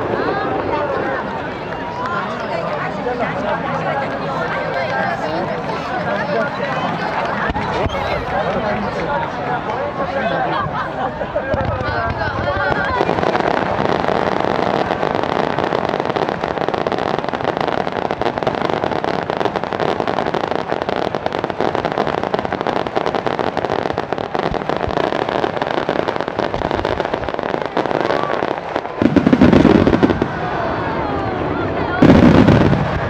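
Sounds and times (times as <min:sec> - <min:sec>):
fireworks bursting and crackling: 0:00.0 - 0:33.0
deep firework blast: 0:11.5 - 0:33.0.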